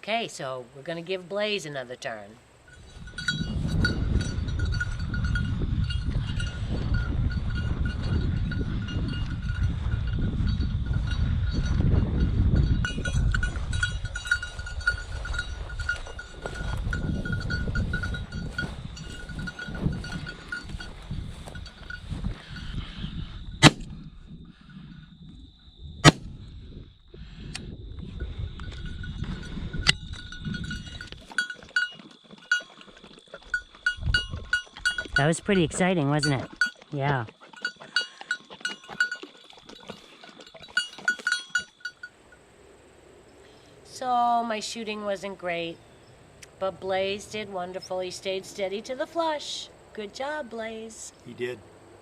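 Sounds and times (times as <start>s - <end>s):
wind rumble: 2.6s - 31.7s, 33.4s - 36.6s
dog bell jingling: 2.7s - 22.8s, 28.6s - 42.2s
shotgun shots: 23.6s - 23.9s, 26.0s - 26.3s.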